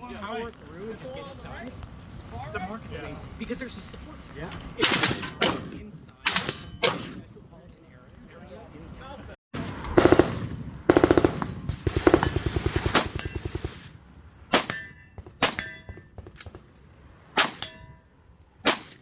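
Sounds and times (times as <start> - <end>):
gunshots: 4.8 - 7.2, 9.9 - 16.7, 17.4 - 17.8, 18.6 - 19.0
metallic ring: 14.2 - 16.1, 17.6 - 18.5.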